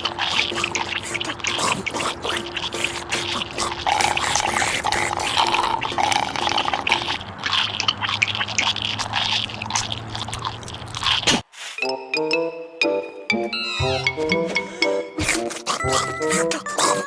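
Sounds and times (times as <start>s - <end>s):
liquid dripping and splashing: 0.0s - 11.4s.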